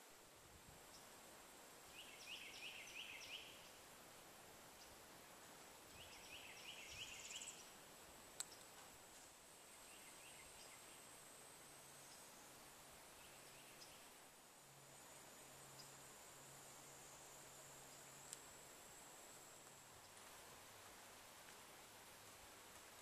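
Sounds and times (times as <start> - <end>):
faint steady high hiss: 0.0 - 23.0
songbird singing faintly: 0.0 - 23.0.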